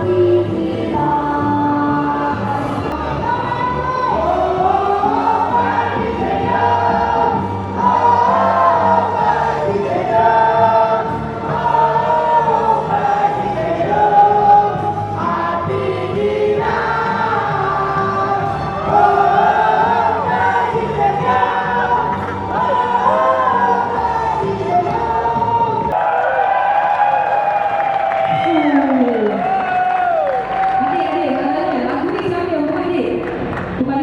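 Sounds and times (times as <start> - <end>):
group of voices singing: 0.0 - 26.0
steady bass line: 0.0 - 26.0.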